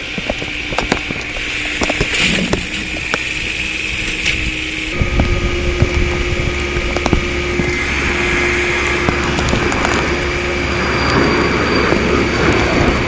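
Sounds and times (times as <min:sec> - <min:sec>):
roots cracking and popping: 0:00.0 - 0:04.6, 0:05.2 - 0:13.0
engine rumbling under load: 0:00.0 - 0:13.0.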